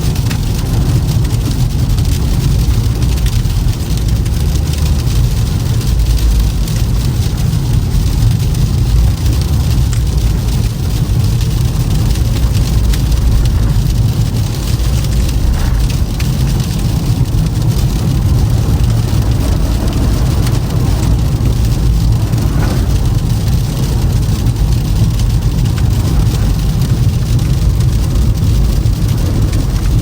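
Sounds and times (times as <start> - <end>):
car rumbling on road: 0.0 - 30.0
tyres hissing through snow: 12.7 - 24.0.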